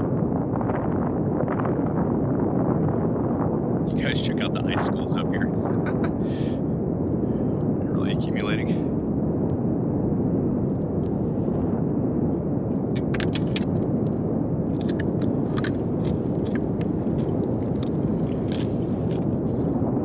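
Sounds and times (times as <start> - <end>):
wind blowing on microphone: 0.0 - 20.0
sharp crunching clicks: 12.6 - 19.7.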